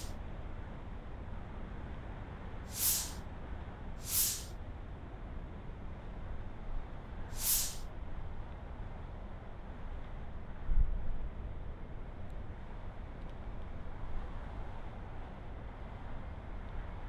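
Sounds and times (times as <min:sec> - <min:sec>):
short hissing bursts: 0:02.7 - 0:03.2, 0:04.0 - 0:04.5, 0:07.3 - 0:07.8.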